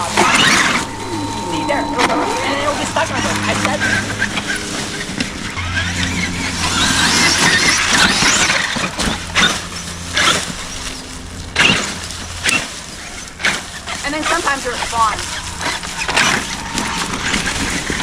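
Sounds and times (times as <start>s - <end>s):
low steady hum: 0.0s - 18.0s
rc truck tyres and drivetrain: 3.8s - 18.0s.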